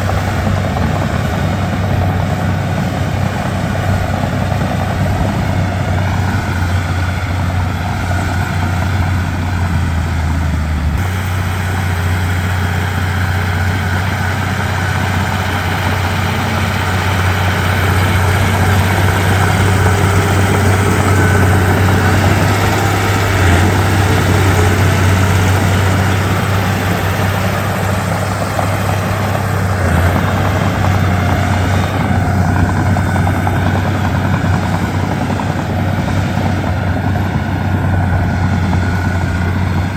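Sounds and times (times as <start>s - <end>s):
bulldozer diesel engine droning: 0.0s - 39.9s.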